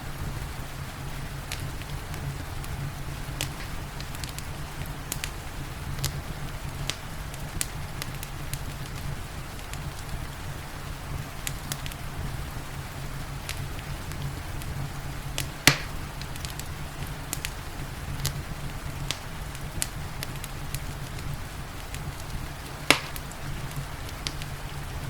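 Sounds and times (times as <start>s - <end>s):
loud crack of fire: 0.0s - 25.0s
rain hissing: 0.0s - 25.0s
wood fire crackling: 0.0s - 25.0s.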